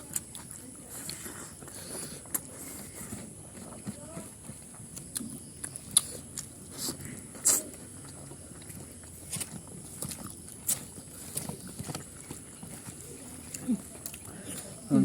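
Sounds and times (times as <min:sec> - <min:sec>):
people chewing food: 0:00.0 - 0:15.0.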